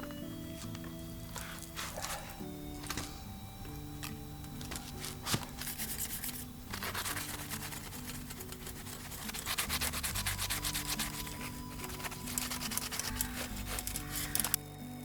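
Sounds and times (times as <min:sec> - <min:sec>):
brush scrubbing metal grill: 0:05.6 - 0:14.5.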